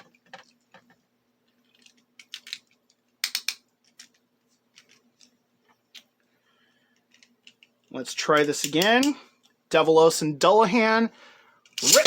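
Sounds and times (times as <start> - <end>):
hard plastic toys clicking: 1.7 - 4.2.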